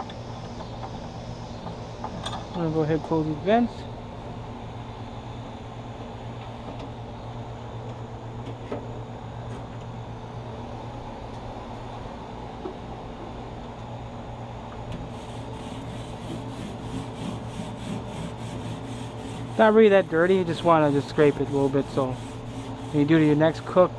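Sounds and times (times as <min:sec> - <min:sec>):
steady low hum: 0:00.0 - 0:23.9
metal grill grates being scraped: 0:15.1 - 0:23.9.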